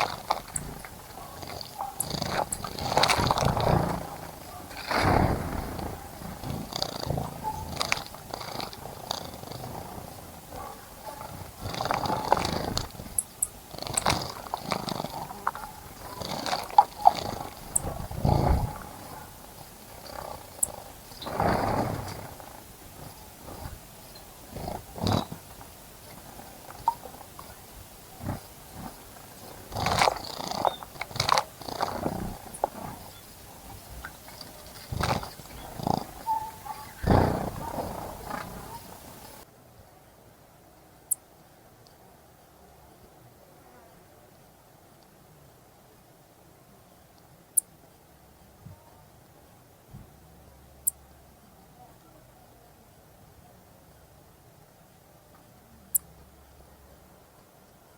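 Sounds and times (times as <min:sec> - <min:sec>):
birds splashing in water: 0:00.0 - 0:39.4
fluttering wings: 0:00.0 - 0:39.4
water splashing: 0:02.4 - 0:08.8.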